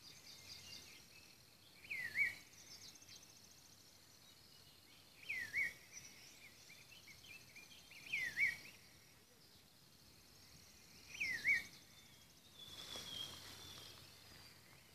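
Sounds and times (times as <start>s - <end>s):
insects trilling: 0.0s - 14.9s
soft bird chirps: 0.0s - 14.9s
bird whistling call: 1.8s - 2.4s, 8.0s - 8.6s, 11.1s - 11.7s.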